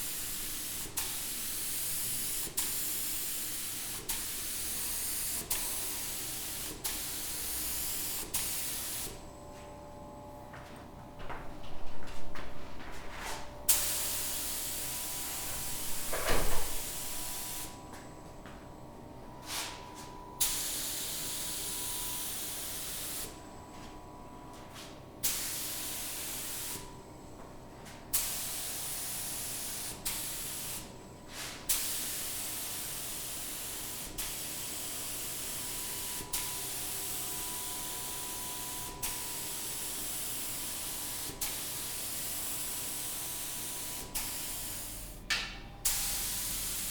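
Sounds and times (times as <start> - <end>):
low thump: 16.0 - 16.9.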